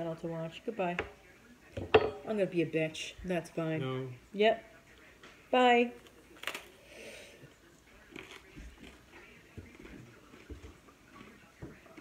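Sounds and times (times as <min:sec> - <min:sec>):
breathy hiss: 0:06.7 - 0:07.5
person chewing food: 0:07.9 - 0:12.0.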